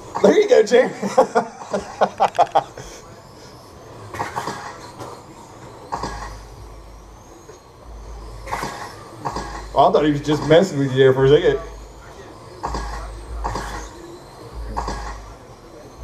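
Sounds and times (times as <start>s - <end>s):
rc trucks running: 0.0s - 16.0s
high whine of passing truck: 1.7s - 16.0s.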